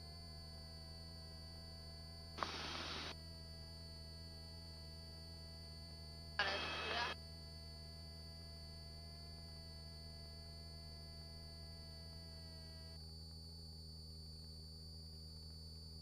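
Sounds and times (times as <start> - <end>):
headset microphone noise burst: 2.4 - 3.1
intercom low hum: 2.4 - 3.1, 6.4 - 7.2
thin high whine: 2.4 - 3.1.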